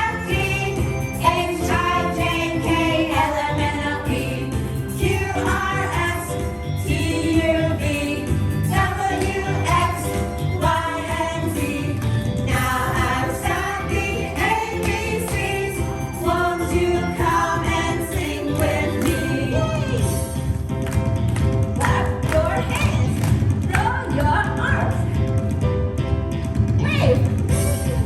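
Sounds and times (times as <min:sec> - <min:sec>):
group of voices singing: 0:00.0 - 0:20.3
musical accompaniment: 0:00.0 - 0:28.0.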